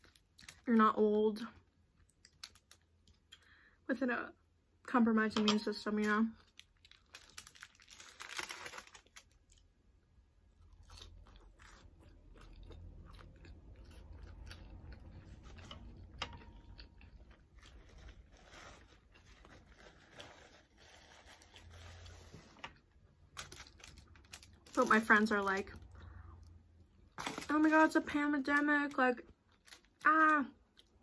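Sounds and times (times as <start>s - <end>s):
person chewing crunchy chips: 1.9s - 3.5s, 6.4s - 9.7s, 10.4s - 22.3s, 23.2s - 25.2s.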